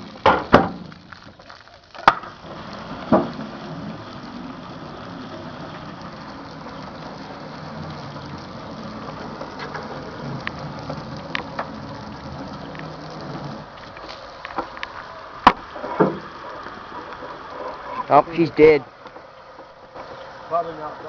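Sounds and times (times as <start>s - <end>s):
faint crackles: 0.0s - 21.0s
thump: 0.2s - 0.9s, 3.1s - 3.4s, 15.4s - 16.3s.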